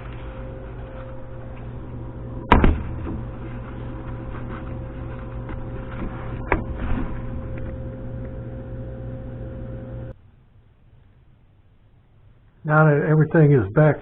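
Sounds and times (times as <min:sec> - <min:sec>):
steady low hum: 0:00.0 - 0:14.0
sharp knocks: 0:02.4 - 0:03.3.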